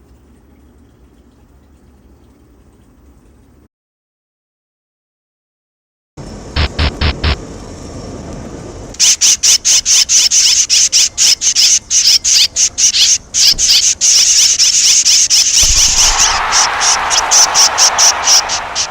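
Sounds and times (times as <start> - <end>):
swallows chirping: 9.4 - 18.9.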